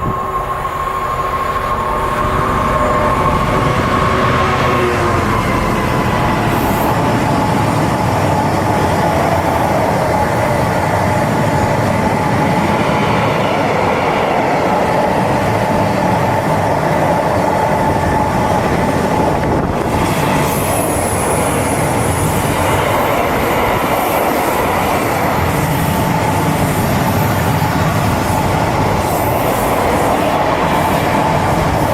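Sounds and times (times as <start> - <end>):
high whine: 0.0 - 13.2
train wheels rolling on rails: 0.0 - 31.9.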